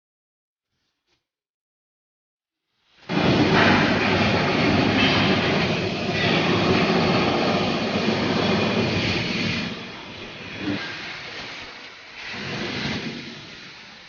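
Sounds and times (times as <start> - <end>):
loud rushing machine noise: 3.1 - 11.4.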